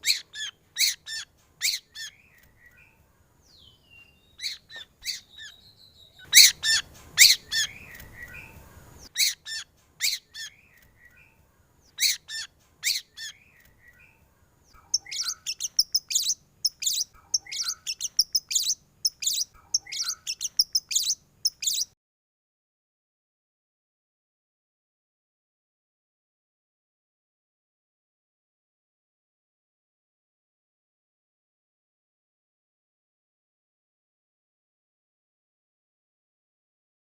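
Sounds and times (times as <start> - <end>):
bird singing whistled notes: 1.6 - 14.2, 14.9 - 22.0.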